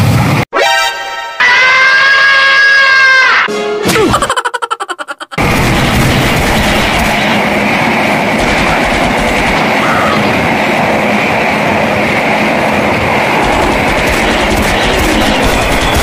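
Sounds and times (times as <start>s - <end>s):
train running fast on track: 5.4s - 16.0s.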